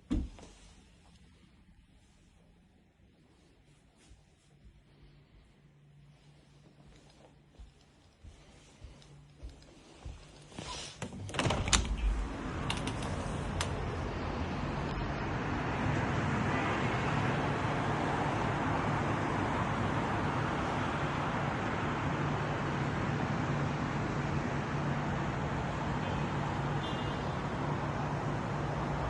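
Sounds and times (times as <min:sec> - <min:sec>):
sliding door clicks and knocks: 0:11.0 - 0:14.0
street traffic noise: 0:11.3 - 0:29.0.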